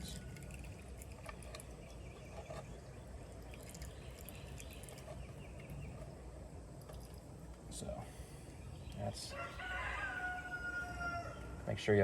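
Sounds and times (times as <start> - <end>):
oil trickling into container: 0.0 - 7.5.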